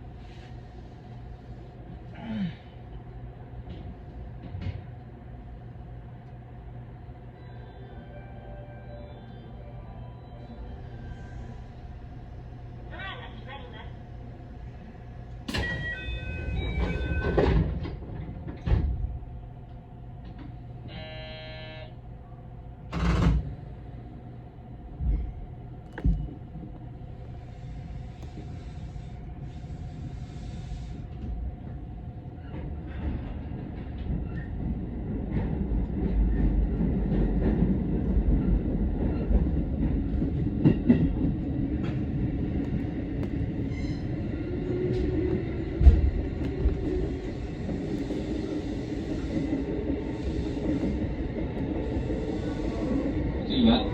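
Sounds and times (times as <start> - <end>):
buzzer tone: 20.9 - 21.9
train rumbling away: 23.1 - 53.9.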